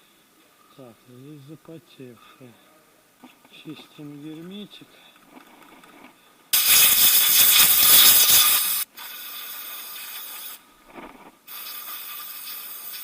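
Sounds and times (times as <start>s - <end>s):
compressed air blow gun hissing: 6.6s - 13.0s.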